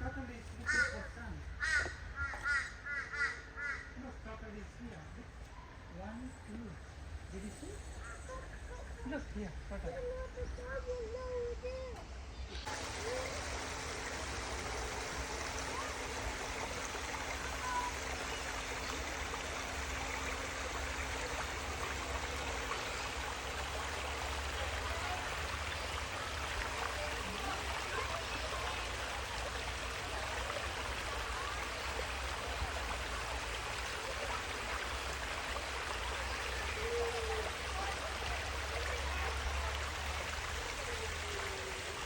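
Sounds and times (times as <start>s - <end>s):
trickling water: 12.6s - 42.0s.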